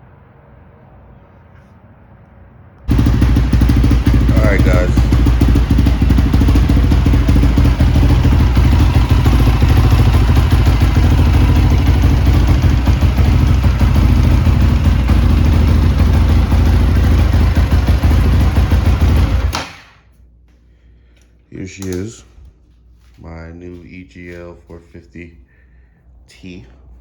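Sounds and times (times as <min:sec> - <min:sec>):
dirt bike engine running: 0:02.9 - 0:19.7.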